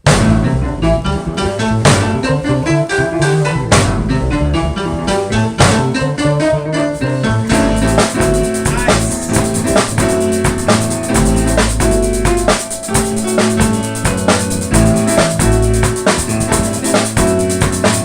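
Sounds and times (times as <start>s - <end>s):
drum kit beat: 0.0s - 2.6s, 3.6s - 6.1s, 7.0s - 18.0s
band playing upbeat song: 6.9s - 18.0s.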